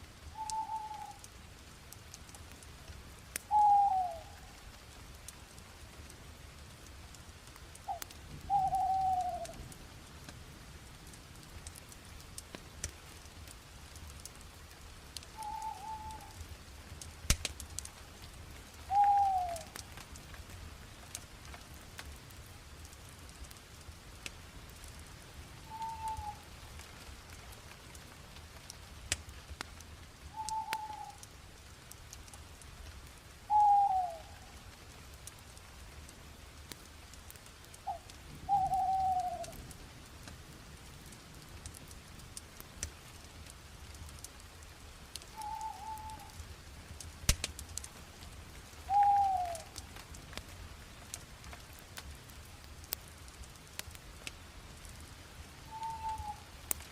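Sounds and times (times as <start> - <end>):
fire crackling and popping: 0.0 - 56.9.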